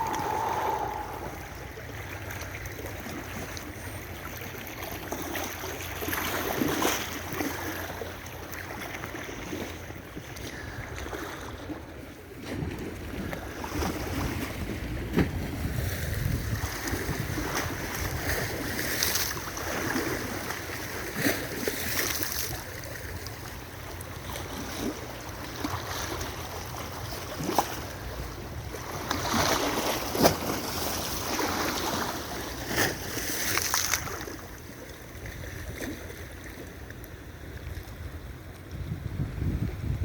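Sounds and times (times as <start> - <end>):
wind buffeting microphone: 0.0 - 2.0, 13.8 - 18.7, 38.1 - 40.0.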